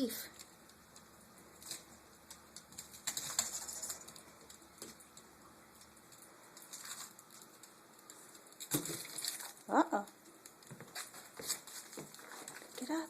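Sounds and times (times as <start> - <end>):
candy wrapper crinkling: 5.8 - 9.7.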